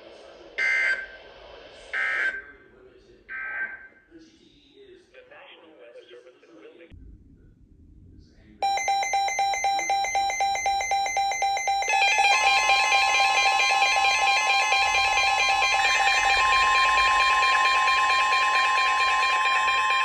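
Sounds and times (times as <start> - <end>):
electronic alarm beeping rapidly: 0.6 - 1.2, 2.0 - 2.5, 8.6 - 20.0
repeating alarm pattern: 0.6 - 1.2, 2.0 - 2.5, 3.3 - 3.9, 8.6 - 20.0
steady warning alarm tone: 0.6 - 1.2, 2.0 - 2.5, 3.3 - 4.0, 8.6 - 20.0.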